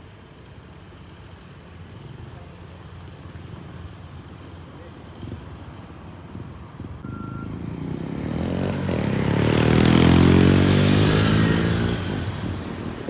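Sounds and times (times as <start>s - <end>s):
vehicle engine passing by: 7.0s - 13.0s.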